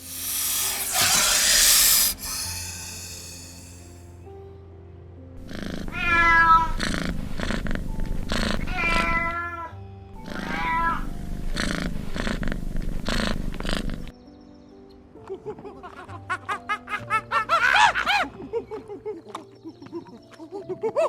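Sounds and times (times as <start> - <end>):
kitten meowing: 5.9 - 6.7, 8.7 - 9.7, 10.4 - 11.1.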